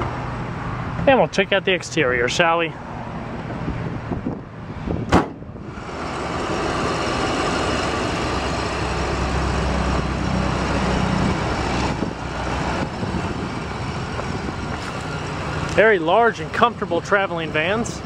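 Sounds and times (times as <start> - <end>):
road traffic: 0.0 - 18.0
sharp thump: 5.0 - 5.5
van engine idling: 5.5 - 18.0.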